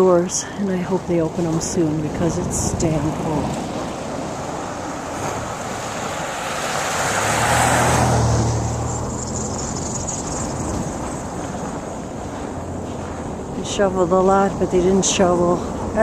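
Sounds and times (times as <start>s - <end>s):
car driving past: 3.2s - 13.6s.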